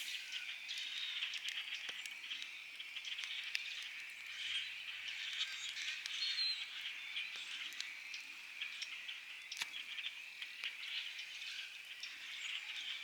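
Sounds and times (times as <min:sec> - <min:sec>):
campfire crackling and popping: 0:00.0 - 0:00.6, 0:01.3 - 0:04.5.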